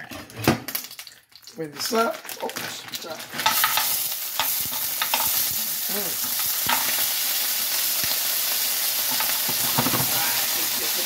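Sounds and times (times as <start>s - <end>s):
shrimp sizzling in hot oil: 2.3s - 11.0s.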